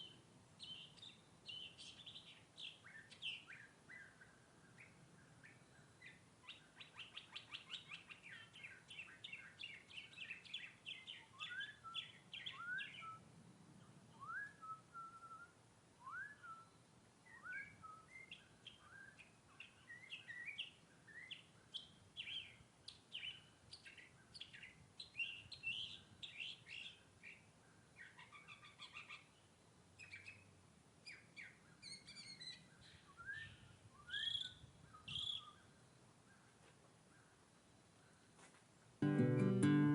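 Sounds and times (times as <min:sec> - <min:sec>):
bird singing faintly: 0:00.0 - 0:38.5.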